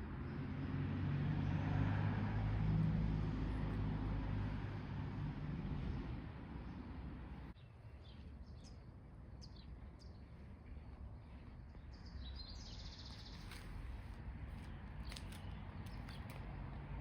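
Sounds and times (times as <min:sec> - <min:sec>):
small birds chirping: 0:06.6 - 0:16.9.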